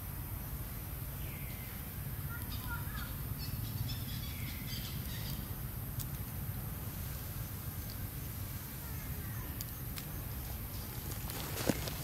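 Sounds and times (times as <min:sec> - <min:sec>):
faint bird chirps: 0:01.2 - 0:05.5.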